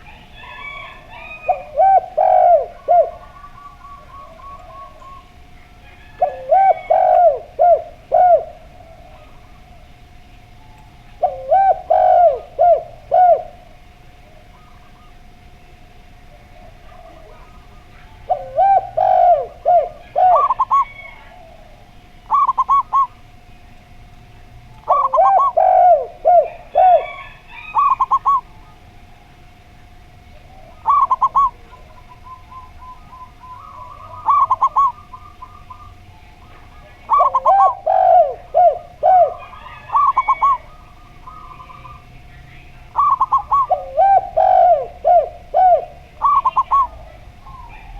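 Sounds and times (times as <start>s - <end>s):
doves cooing: 0.0s - 47.9s.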